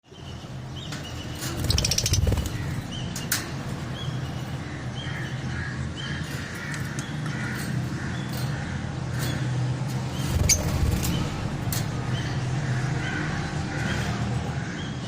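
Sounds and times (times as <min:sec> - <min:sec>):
lovebirds chirping: 0:00.0 - 0:05.4, 0:10.1 - 0:11.4
wing flapping: 0:01.4 - 0:02.9, 0:10.2 - 0:11.4.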